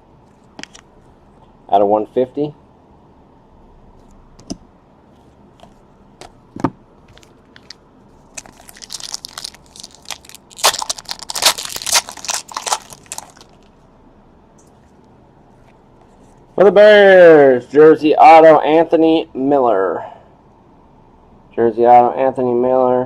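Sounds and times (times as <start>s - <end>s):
plastic wrapper crinkling: 7.1s - 13.7s.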